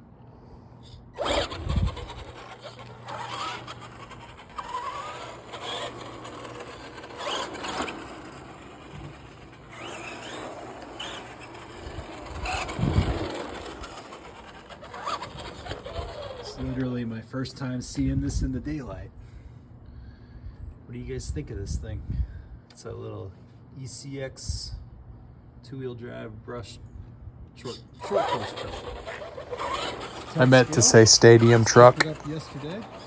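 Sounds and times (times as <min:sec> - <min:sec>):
electric motor whining: 0:01.2 - 0:16.8, 0:28.0 - 0:33.0.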